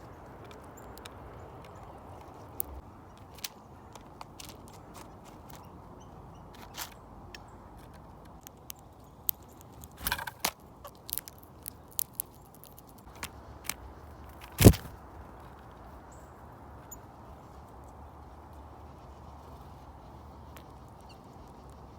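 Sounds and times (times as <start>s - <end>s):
outdoor background: 0.0s - 21.9s
birds pecking at feeder: 7.6s - 15.8s.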